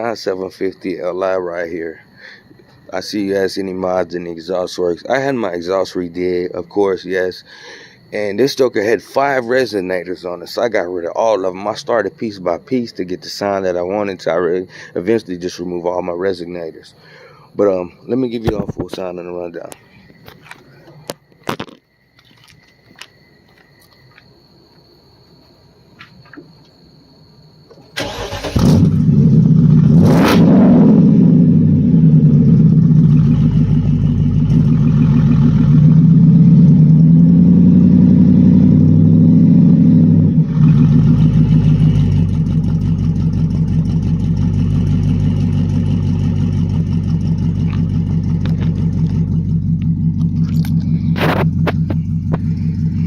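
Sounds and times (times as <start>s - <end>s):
car engine starting and idling: 28.0s - 53.0s.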